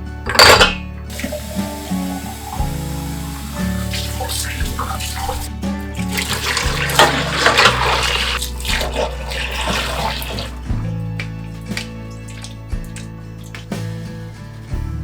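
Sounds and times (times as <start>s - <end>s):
soft background music: 0.0s - 15.0s
tap water running into sink: 1.1s - 14.3s.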